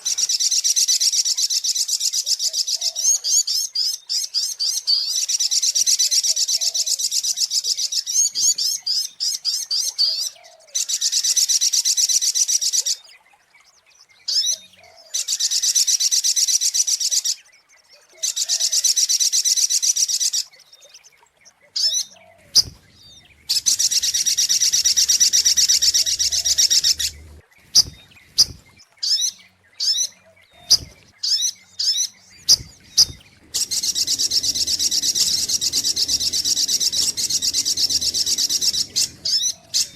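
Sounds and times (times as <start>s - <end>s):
bird high fast trills: 21.9s - 39.9s
bird sharp single notes: 22.3s - 39.9s.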